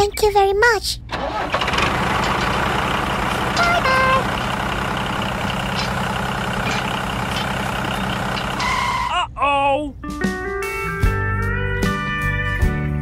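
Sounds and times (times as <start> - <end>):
truck engine running: 1.1 - 9.1
horn toots: 3.3 - 4.4, 8.6 - 9.2.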